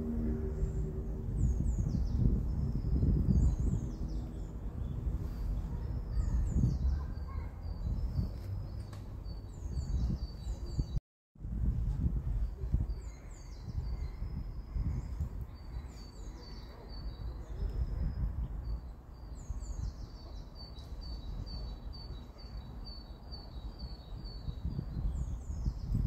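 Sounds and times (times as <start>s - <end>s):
steady low rumble: 0.0s - 7.0s.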